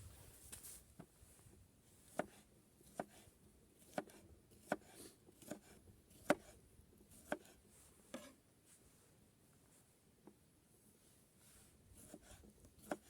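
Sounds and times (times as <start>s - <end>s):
knife chopping on cutting board: 2.1s - 3.2s, 3.9s - 6.6s, 7.2s - 7.6s, 12.0s - 13.0s.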